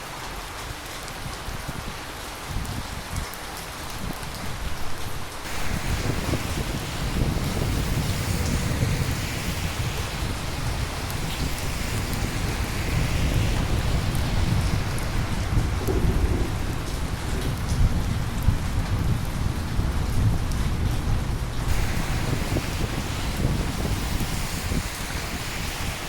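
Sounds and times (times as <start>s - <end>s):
heavy rain: 0.0s - 26.0s
thunder rumbling: 5.4s - 26.0s.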